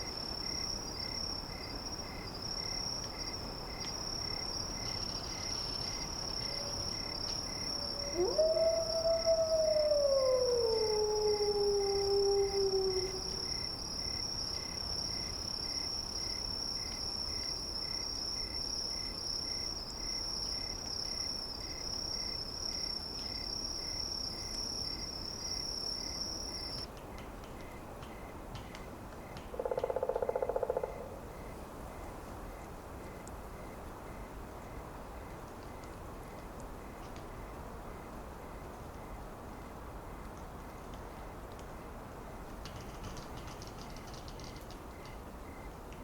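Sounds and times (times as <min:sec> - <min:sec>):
high insect trill: 0:00.0 - 0:26.9, 0:29.5 - 0:31.5
soft steady hiss: 0:00.0 - 0:46.0
low buzzing animal call: 0:07.9 - 0:13.4.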